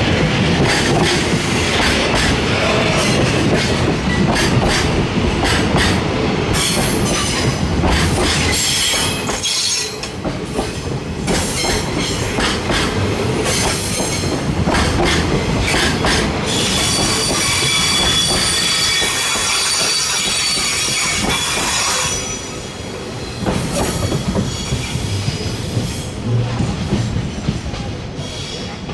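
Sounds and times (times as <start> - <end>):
train wheels clattering on rail joints: 0.0 - 22.6, 23.3 - 28.9
train rumble: 0.0 - 28.9
high wheel squeal: 16.5 - 22.6.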